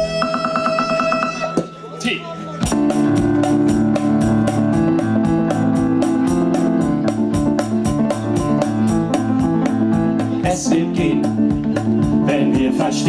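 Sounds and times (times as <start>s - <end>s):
electric piano chords: 2.6s - 13.0s
fast percussion beat: 2.6s - 13.0s.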